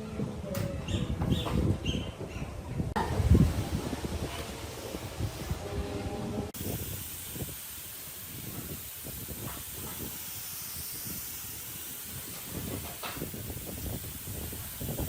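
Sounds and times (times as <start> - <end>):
steady hiss: 6.5 - 15.0.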